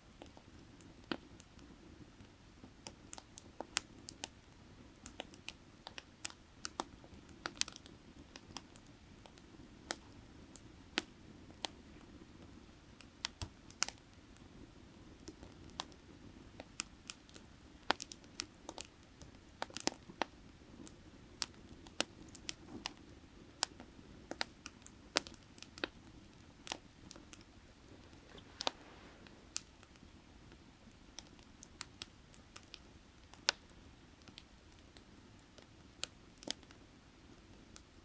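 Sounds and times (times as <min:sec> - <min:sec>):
firewood crackling and popping: 0:00.1 - 0:38.0.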